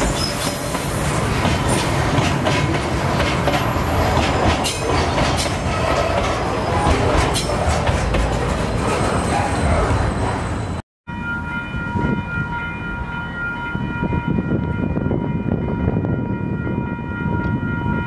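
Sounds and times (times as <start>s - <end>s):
wheels clattering over rail joints: 0.0s - 10.7s
train wagons rolling past: 0.0s - 14.3s.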